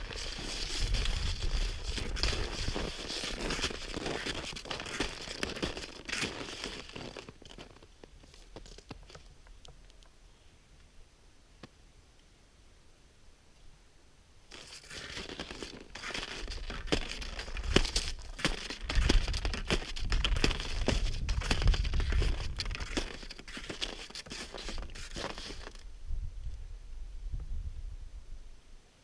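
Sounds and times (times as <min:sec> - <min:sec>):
material crinkling and crunching: 0:00.0 - 0:10.1, 0:14.5 - 0:25.8.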